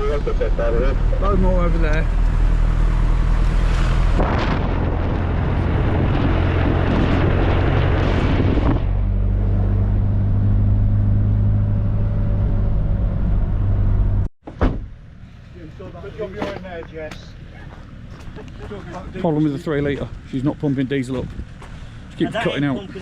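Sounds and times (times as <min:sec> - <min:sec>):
truck engine drone: 0:00.0 - 0:14.3
road noise: 0:00.0 - 0:23.0.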